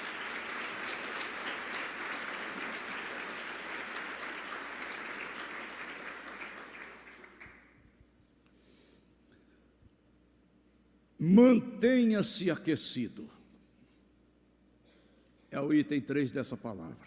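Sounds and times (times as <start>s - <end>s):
congregation applauding: 0.0s - 7.8s.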